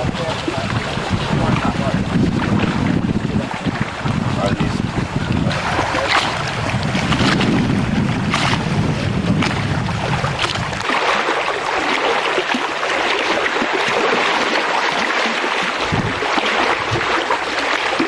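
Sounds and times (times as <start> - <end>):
wind buffeting microphone: 0.0 - 10.9, 15.8 - 17.6
running water rushing: 0.0 - 18.0.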